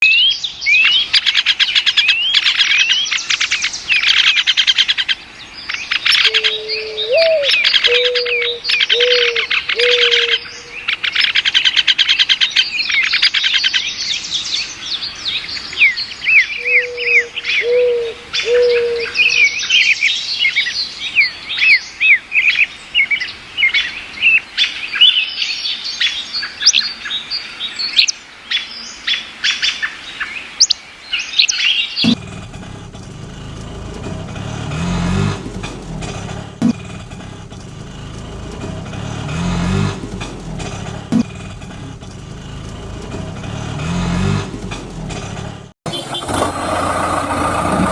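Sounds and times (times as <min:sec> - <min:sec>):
small birds chirping: 0:00.0 - 0:45.0
low cooing: 0:06.2 - 0:10.4, 0:16.6 - 0:19.2.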